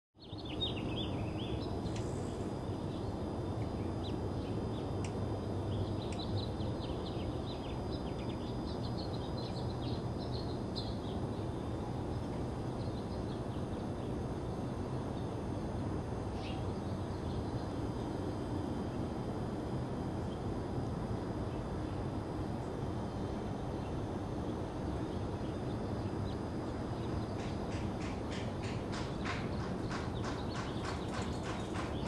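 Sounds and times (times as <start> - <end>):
birds chirping: 5.5 - 14.2, 25.3 - 32.0.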